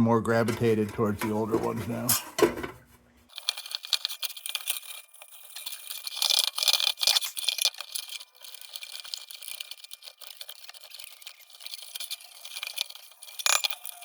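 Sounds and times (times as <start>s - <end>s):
steel wool scrubbing sheet metal: 3.3s - 14.0s.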